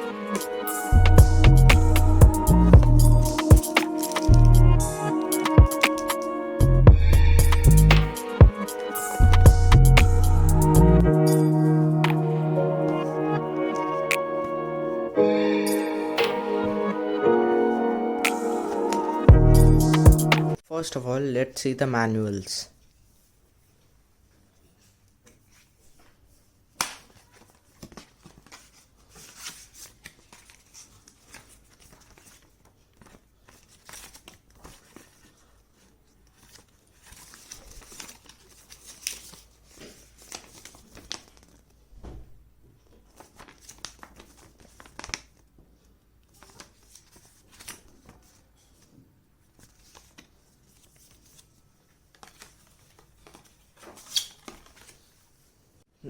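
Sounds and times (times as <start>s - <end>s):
paper and plastic packaging rustling: 24.6s - 41.9s, 42.7s - 55.6s.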